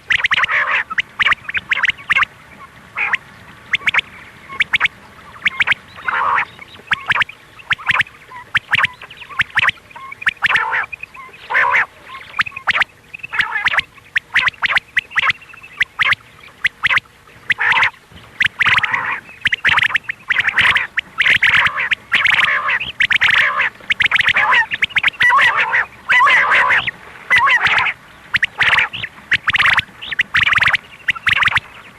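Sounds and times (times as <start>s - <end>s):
quail calling harshly: 0.0s - 31.9s.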